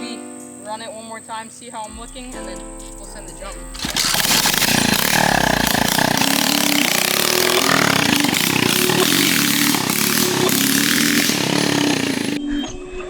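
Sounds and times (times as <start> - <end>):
dirt bike engine revving: 2.0 - 12.4.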